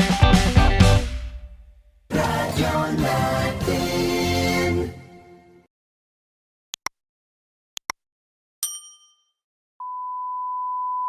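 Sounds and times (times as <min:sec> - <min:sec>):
background music: 0:00.0 - 0:05.7
bright ding: 0:08.6 - 0:09.4
steady electronic beep tone: 0:09.8 - 0:11.0.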